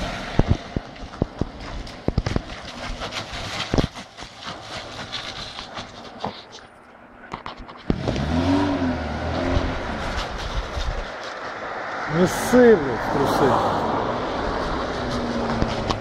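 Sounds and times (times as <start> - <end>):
car engine revving: 7.8 - 16.0.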